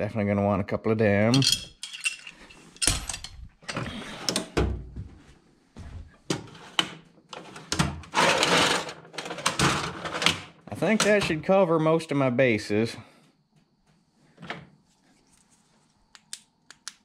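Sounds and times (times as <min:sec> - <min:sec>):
metal tools clinking: 0:01.3 - 0:03.5
tools scraping and rattling: 0:01.3 - 0:04.6, 0:06.3 - 0:11.3.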